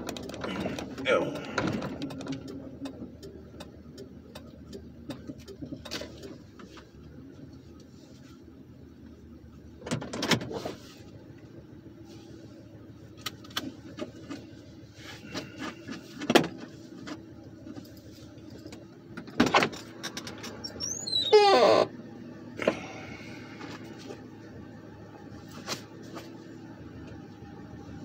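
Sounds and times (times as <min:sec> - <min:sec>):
car engine idling: 0:00.0 - 0:28.0
squeaky sliding: 0:20.5 - 0:21.9.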